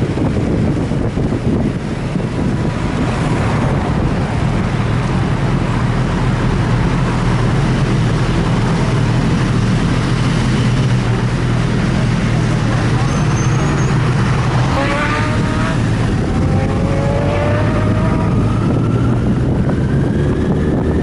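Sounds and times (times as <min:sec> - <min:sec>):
wind noise rushing: 0:00.0 - 0:06.0, 0:14.0 - 0:21.0
motorcycle engine droning: 0:03.9 - 0:21.0.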